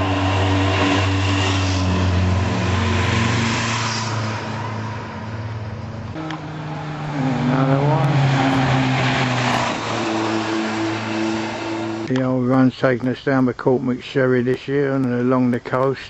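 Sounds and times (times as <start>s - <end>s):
motorcycle accelerating: 0.0s - 12.1s
motorcycles passing: 0.0s - 12.7s.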